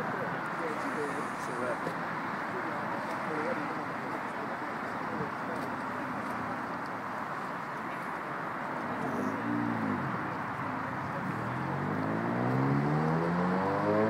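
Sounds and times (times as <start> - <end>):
background noise: 0.0 - 14.0
car engine revving: 11.4 - 14.0.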